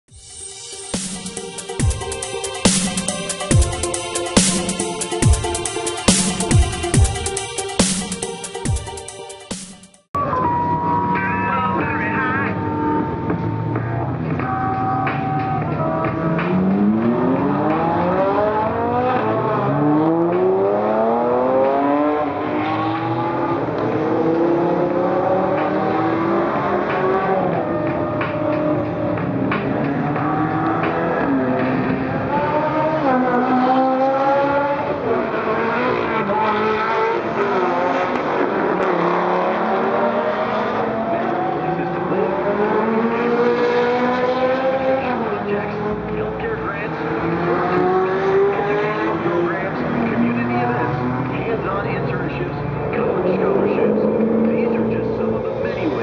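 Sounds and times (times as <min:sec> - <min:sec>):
car engine accelerating hard: 0:12.5 - 0:56.0.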